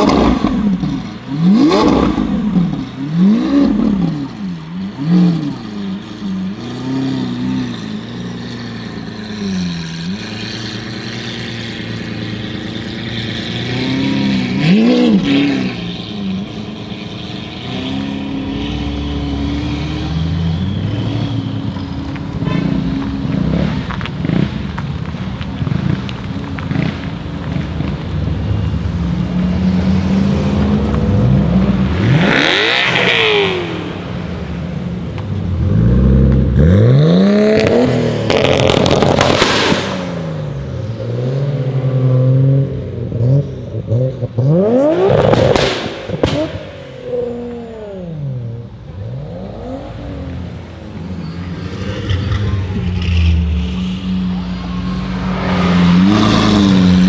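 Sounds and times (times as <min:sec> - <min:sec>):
sports car engines revving: 0:00.0 - 0:57.0
exhaust pops and crackles: 0:23.0 - 0:28.1, 0:37.6 - 0:40.2, 0:45.0 - 0:46.8.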